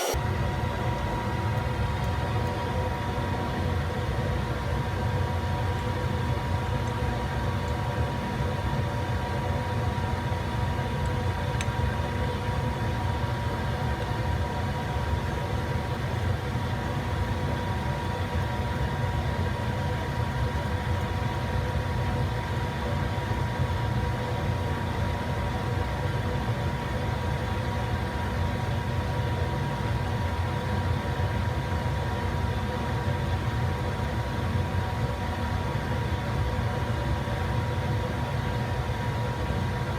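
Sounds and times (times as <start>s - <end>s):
lathe running with hum: 0.0s - 6.2s.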